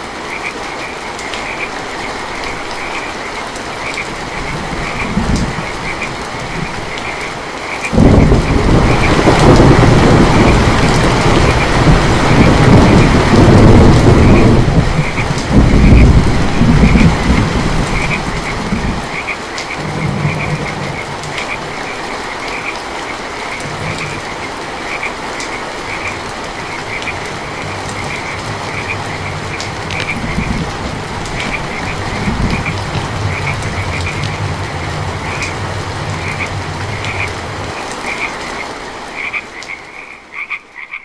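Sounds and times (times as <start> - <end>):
frogs croaking: 0.0 - 41.0
heavy rain falling: 0.0 - 41.0
low thunder rumbling: 4.2 - 7.3, 7.9 - 21.9, 23.4 - 24.9, 25.8 - 37.9.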